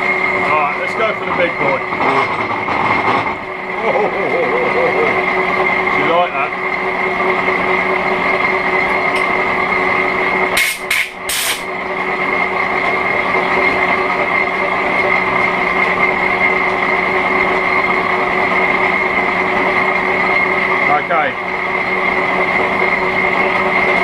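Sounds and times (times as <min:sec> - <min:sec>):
metal lathe running: 0:00.0 - 0:24.0
short sharp hisses: 0:10.6 - 0:11.7.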